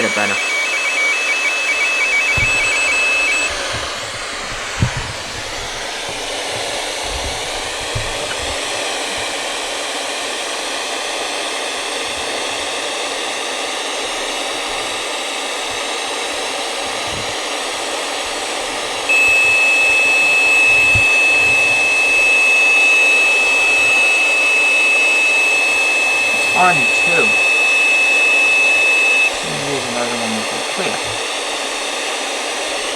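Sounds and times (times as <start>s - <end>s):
high-pitched electronic tone: 0.0s - 3.6s, 19.1s - 30.3s
radio static hiss: 0.0s - 10.1s, 16.6s - 32.9s.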